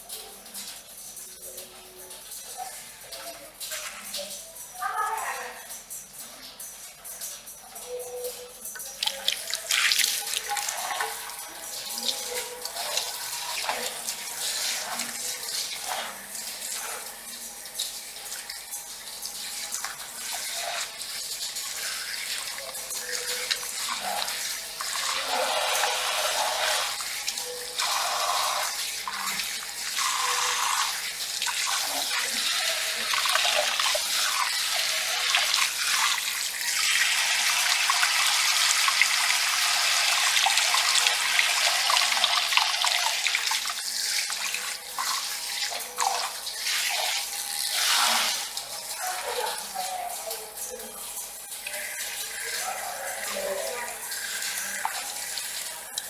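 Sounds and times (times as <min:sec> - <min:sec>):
rain on a metal roof: 0:00.0 - 0:38.1
water running into a basin: 0:00.0 - 0:56.0.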